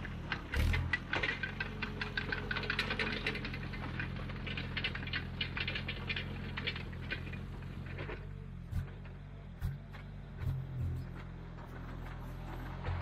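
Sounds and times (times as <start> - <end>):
rapid clicking and clatter: 0.0 - 8.2
diesel engine running: 0.0 - 13.0.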